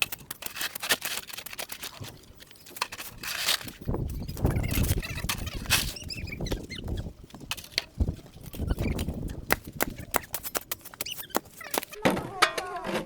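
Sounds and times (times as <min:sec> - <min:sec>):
crunching of hard-packed snow: 0:00.0 - 0:12.4.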